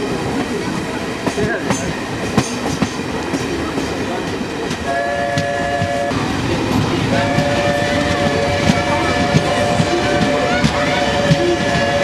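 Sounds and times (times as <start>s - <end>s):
moving train rumble and clatter: 0.0s - 12.0s
train horn blasts: 4.9s - 6.1s, 7.1s - 12.0s.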